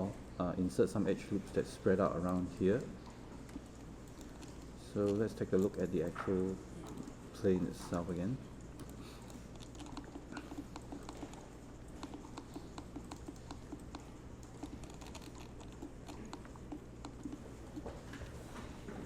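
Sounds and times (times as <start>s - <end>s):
faint low hum: 0.0s - 19.0s
keyboard keys clicking: 8.6s - 18.3s.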